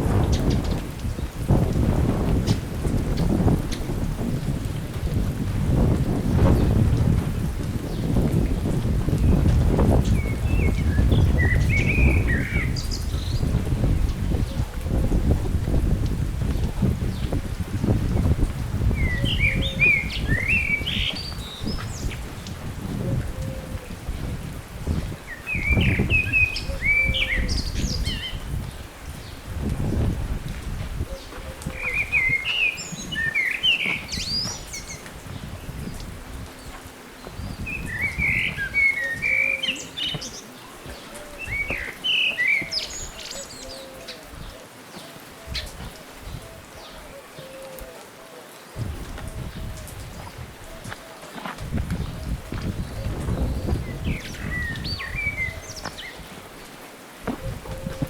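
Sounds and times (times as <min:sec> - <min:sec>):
wind buffeting microphone: 0:00.0 - 0:47.9, 0:48.8 - 0:58.0
songbird chirping: 0:07.9 - 0:15.4, 0:18.1 - 0:23.7, 0:25.0 - 0:29.4, 0:31.1 - 0:56.4
songbird warbling: 0:19.0 - 0:22.2, 0:37.5 - 0:48.0.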